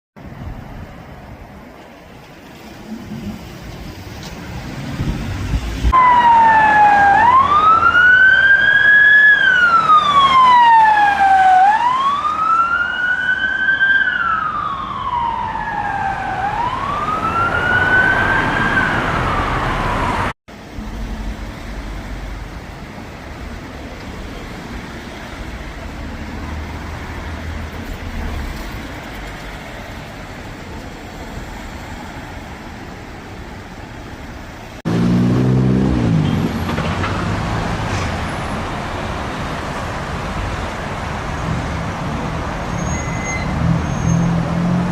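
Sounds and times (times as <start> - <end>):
road traffic noise: 0.2 - 44.9
emergency vehicle siren wailing: 5.9 - 20.4.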